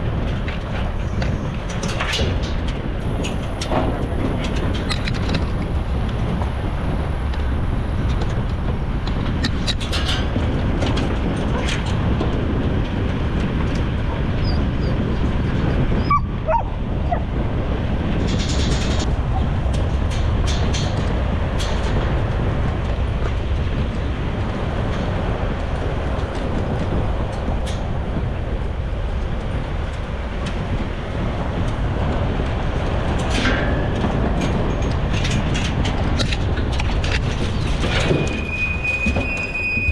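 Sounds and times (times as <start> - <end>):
vehicle rumble: 0.0 - 39.9
dogs whining and yipping: 16.0 - 17.3.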